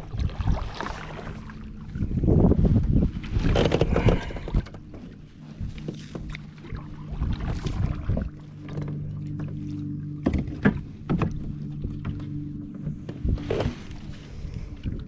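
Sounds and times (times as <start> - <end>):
steady low hum: 0.0 - 15.0
water rushing and sloshing: 0.0 - 15.0
small knocks against kayak hull: 10.2 - 13.8.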